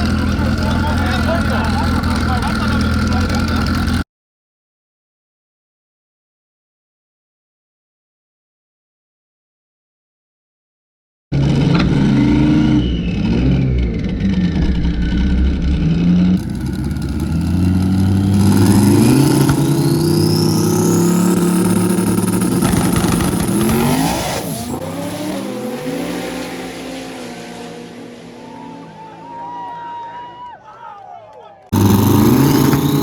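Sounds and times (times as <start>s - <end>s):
race car engines revving: 0.0s - 4.0s, 11.4s - 30.6s, 31.6s - 33.0s.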